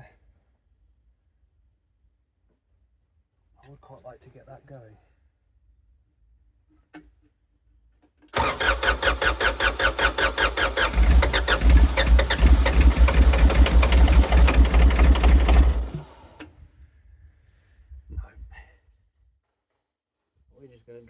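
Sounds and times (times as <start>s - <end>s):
engine cranking on starter motor: 8.4s - 16.5s.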